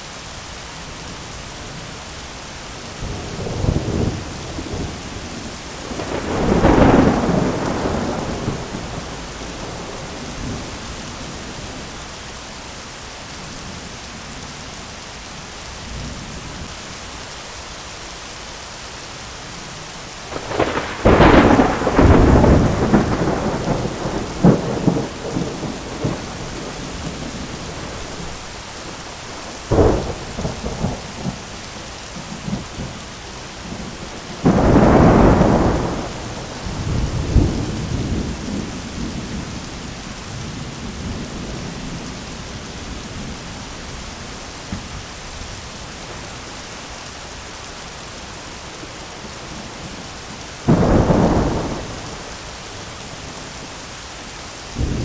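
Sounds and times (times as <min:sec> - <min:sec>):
steady rain hiss: 0:00.0 - 0:55.0
thunder rumbling: 0:03.0 - 0:11.9, 0:20.3 - 0:31.6, 0:32.2 - 0:46.3, 0:48.8 - 0:53.4, 0:54.8 - 0:55.0
thunder cracking: 0:05.8 - 0:10.7, 0:20.3 - 0:28.4, 0:33.7 - 0:39.5, 0:50.6 - 0:52.3, 0:54.8 - 0:55.0.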